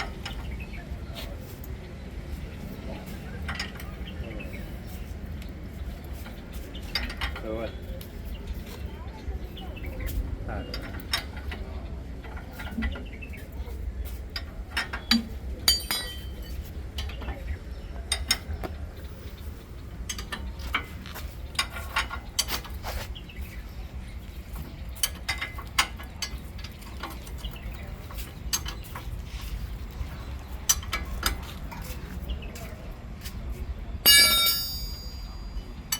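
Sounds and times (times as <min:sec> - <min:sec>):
metallic tool clinks: 0:15.7 - 0:16.6, 0:34.1 - 0:35.6.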